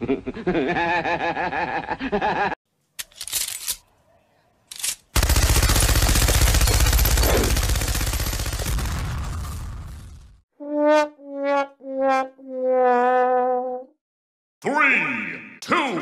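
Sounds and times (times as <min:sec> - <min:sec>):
man laughing: 0:00.0 - 0:02.6
rapid machine-gun fire: 0:05.2 - 0:10.2.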